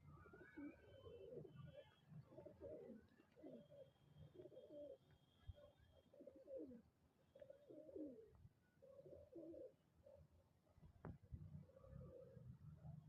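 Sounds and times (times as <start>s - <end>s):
pigeon cooing: 2.3s - 3.8s, 4.4s - 5.0s, 6.2s - 6.8s, 7.5s - 8.3s, 8.9s - 9.8s.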